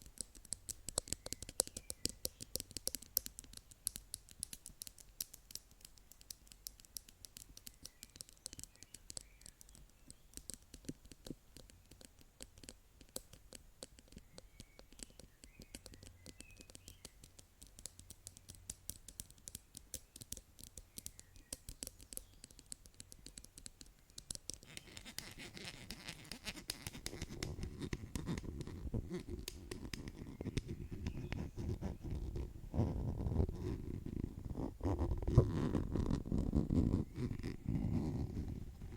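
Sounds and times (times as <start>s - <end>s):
dense scratching: 24.5s - 38.9s.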